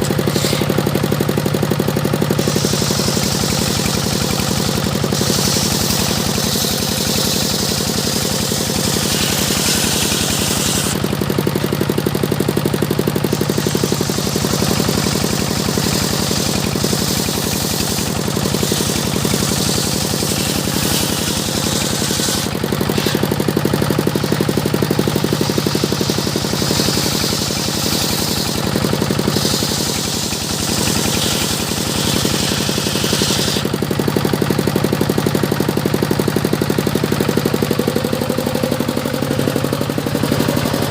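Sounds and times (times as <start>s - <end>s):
saw blade hissing through wood: 0.0s - 1.0s, 2.2s - 11.2s, 13.2s - 33.8s
saw engine running: 0.0s - 40.9s.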